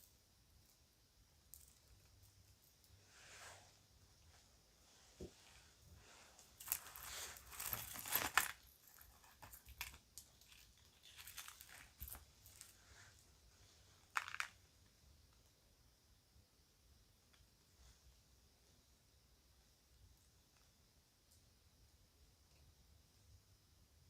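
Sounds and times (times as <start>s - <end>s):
small jewelry pieces clicking: 1.5s - 3.0s, 6.6s - 12.8s
bag rustling: 6.5s - 9.6s.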